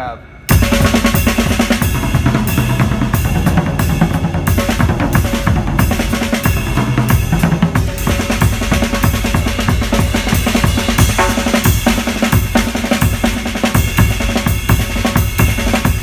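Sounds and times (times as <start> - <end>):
cymbals ringing: 0.0 - 16.0
bass drum pumping: 0.5 - 16.0
drum fills on snare and toms: 0.5 - 16.0.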